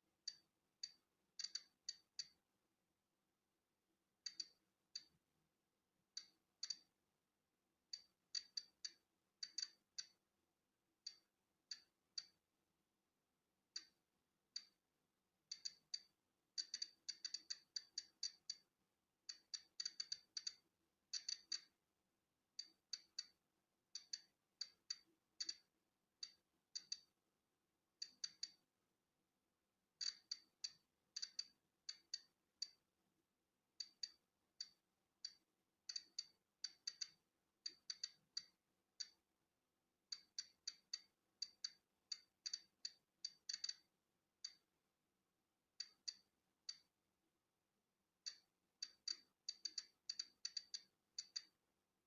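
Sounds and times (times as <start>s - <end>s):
geiger counter clicking: 0.3s - 2.4s, 4.2s - 5.2s, 6.2s - 7.0s, 7.9s - 10.2s, 11.1s - 12.4s, 15.5s - 18.7s, 19.3s - 21.8s, 22.6s - 27.1s, 28.0s - 28.7s, 30.0s - 32.8s, 33.8s - 39.2s, 40.1s - 44.6s, 45.8s - 46.9s, 48.2s - 51.6s.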